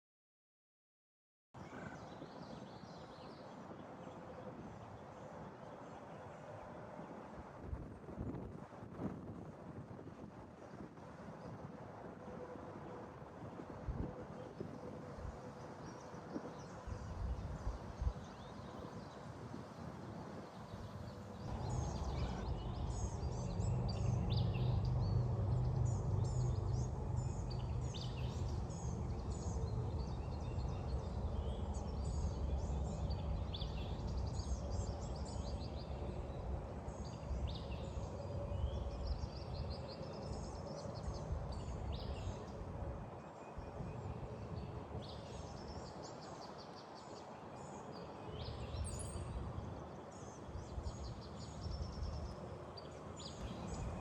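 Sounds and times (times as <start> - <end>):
wind buffeting microphone: 7.0 - 46.0
small birds chirping: 21.5 - 35.9.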